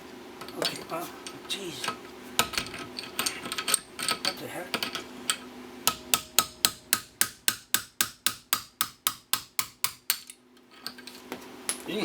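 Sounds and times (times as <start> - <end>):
hammer striking steel punch: 5.8 - 10.4.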